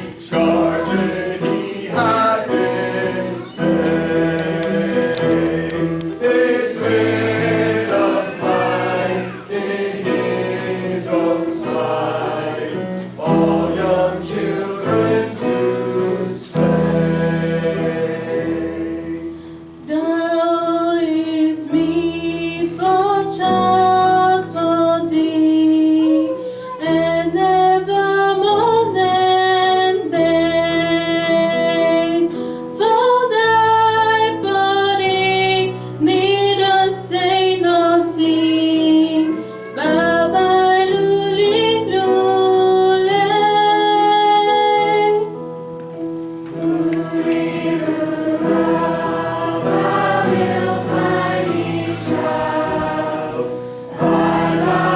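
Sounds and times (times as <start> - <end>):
choir singing a carol: 0.0 - 25.3, 39.9 - 44.2, 46.5 - 54.9
sustained accompanying chords: 46.6 - 54.9.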